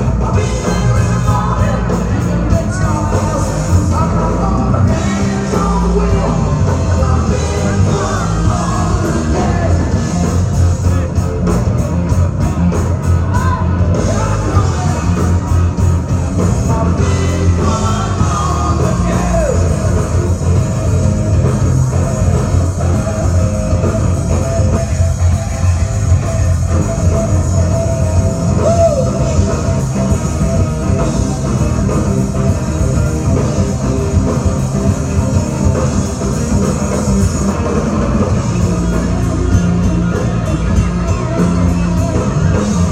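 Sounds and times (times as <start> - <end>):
rock band playing with singing: 0.0 - 42.9.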